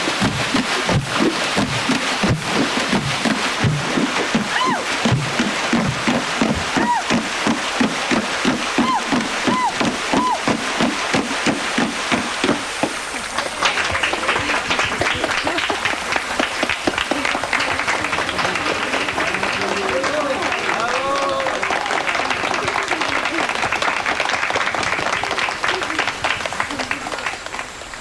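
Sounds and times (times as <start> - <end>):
hands plunking water surface: 0.0 - 21.6
applause: 0.0 - 28.0
people whooping: 4.2 - 5.2, 6.5 - 7.3, 8.6 - 10.6, 16.9 - 23.8.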